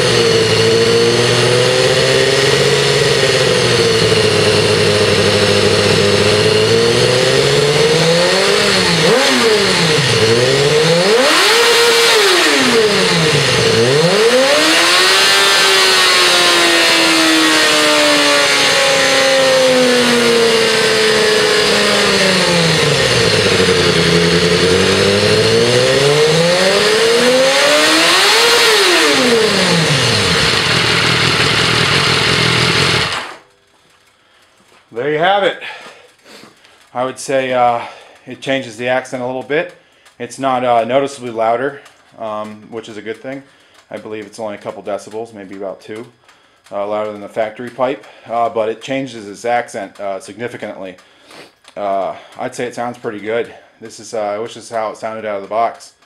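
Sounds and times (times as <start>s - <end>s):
motorcycle engine revving: 0.0s - 33.5s.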